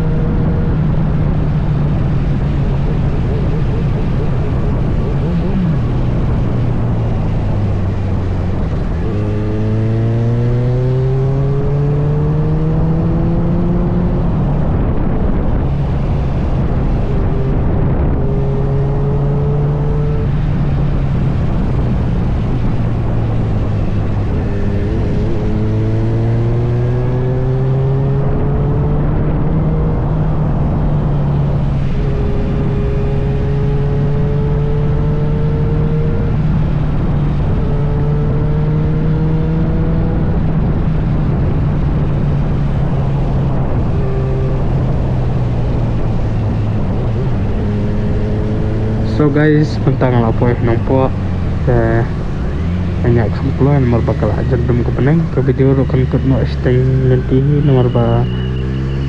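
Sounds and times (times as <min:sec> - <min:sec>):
motorcycle engine running: 0:00.0 - 0:11.1
wind rushing over microphone: 0:00.0 - 0:59.0.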